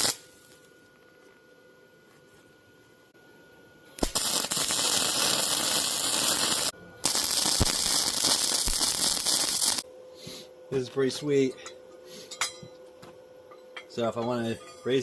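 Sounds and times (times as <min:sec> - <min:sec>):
arc welder crackling: 0:00.0 - 0:00.7, 0:04.0 - 0:09.8.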